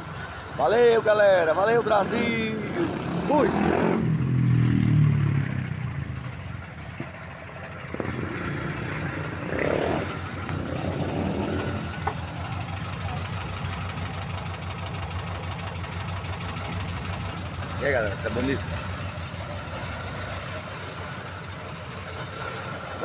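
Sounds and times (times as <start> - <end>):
car engine idling: 0.0 - 23.0
motorcycle passing: 2.0 - 6.6, 7.8 - 13.1.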